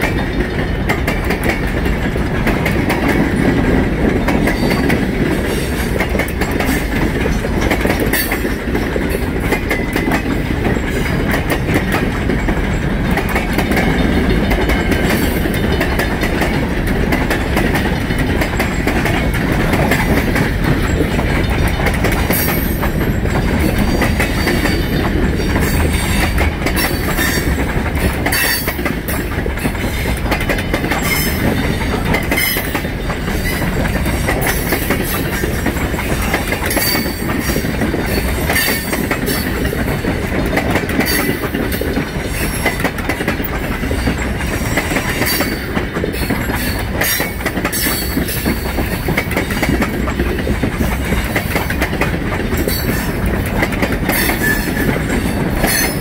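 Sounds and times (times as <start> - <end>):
steel wheels rumbling on rail: 0.0 - 56.0
wheels clacking over rail joints: 0.0 - 56.0.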